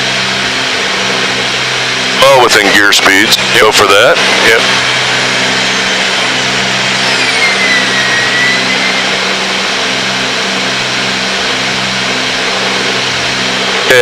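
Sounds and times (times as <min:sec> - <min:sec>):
aircraft engines droning: 0:00.0 - 0:14.0
whistle gliding down: 0:04.6 - 0:10.2.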